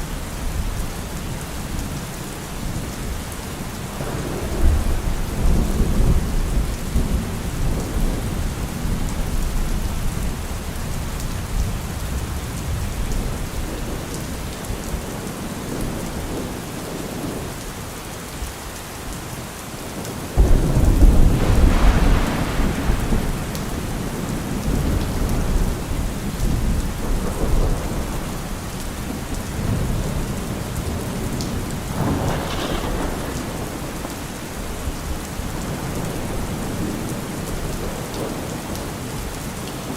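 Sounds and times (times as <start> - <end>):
rain falling on trees: 0.0 - 39.9
thunder rumbling: 4.0 - 17.4, 20.4 - 38.7
loud thunderclap: 20.4 - 28.4, 30.9 - 34.2.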